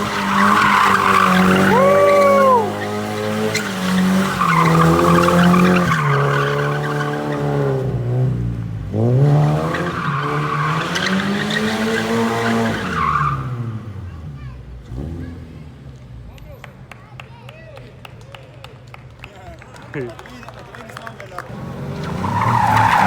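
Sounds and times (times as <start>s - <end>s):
car engine revving hard: 0.0s - 15.7s, 21.5s - 23.0s
tyres skidding and squealing: 0.0s - 17.5s, 21.4s - 23.0s.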